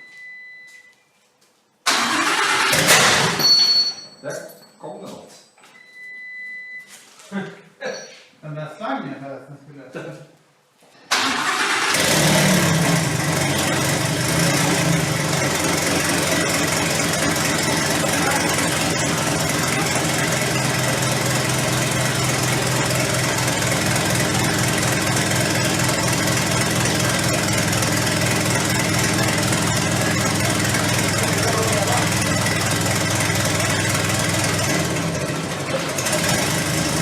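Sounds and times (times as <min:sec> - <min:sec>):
engine idling loud: 0:11.2 - 0:37.0.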